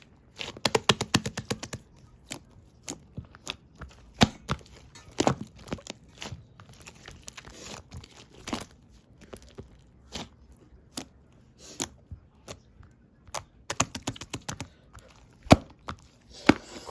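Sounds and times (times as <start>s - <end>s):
slime popping and crackling: 0.2s - 11.2s.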